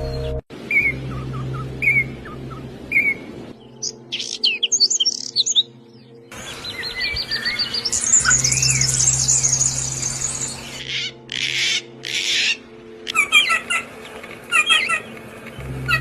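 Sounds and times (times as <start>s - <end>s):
birds twittering: 0.0s - 16.0s
harsh raspy bird calls: 10.7s - 13.9s, 14.5s - 15.2s.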